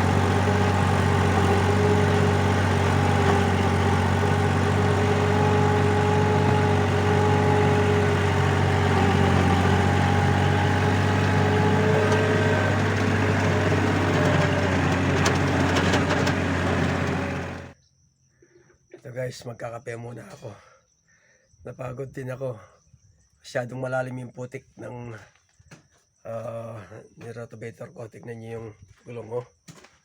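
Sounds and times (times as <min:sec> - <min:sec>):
tractor engine running: 0:00.0 - 0:17.8.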